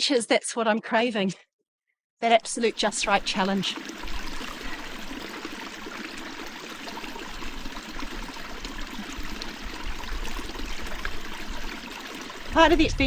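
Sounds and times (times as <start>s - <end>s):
running water rushing: 2.5s - 13.0s
small water splashes: 2.6s - 13.0s.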